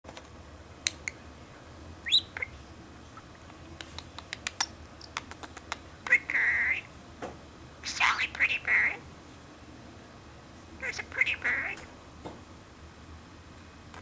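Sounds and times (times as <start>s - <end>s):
parrot clicking: 0.8s - 1.2s, 3.5s - 6.2s.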